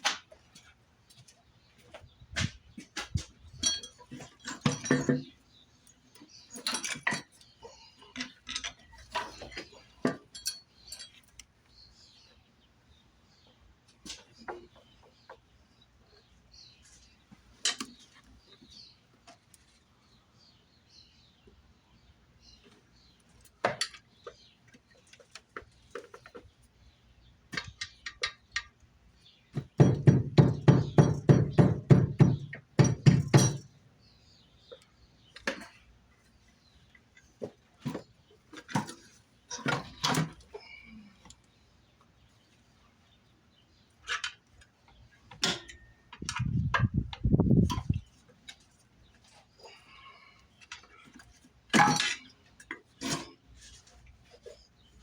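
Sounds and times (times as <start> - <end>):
metal tools clinking and knocking: 1.9 - 11.4, 23.6 - 24.4, 27.5 - 28.8, 32.4 - 33.8, 44.0 - 46.9, 50.6 - 53.8.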